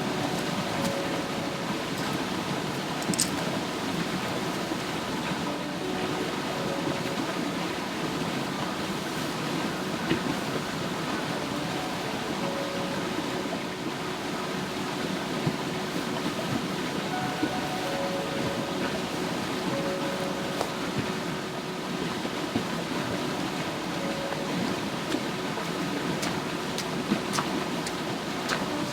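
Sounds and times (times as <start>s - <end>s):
rain on a tarp: 25.0s - 28.9s.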